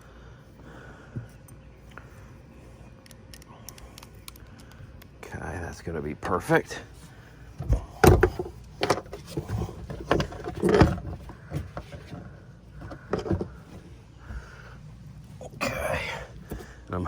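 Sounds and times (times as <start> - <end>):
knocks and clatter of hard parts: 7.6 - 14.8.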